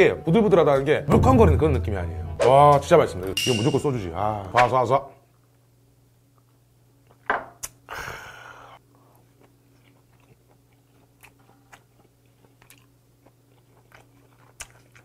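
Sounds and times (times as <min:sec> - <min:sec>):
breathy exhale: 0:07.9 - 0:08.8
soft chewing: 0:08.8 - 0:15.0.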